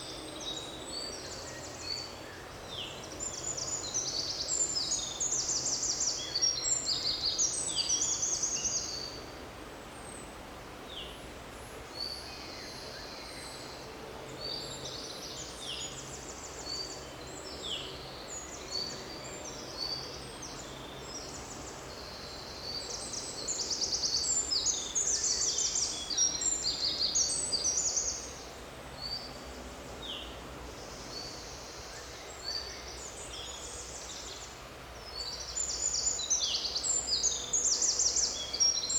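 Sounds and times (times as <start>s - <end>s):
songbirds chirping and trilling: 11.7s - 38.9s.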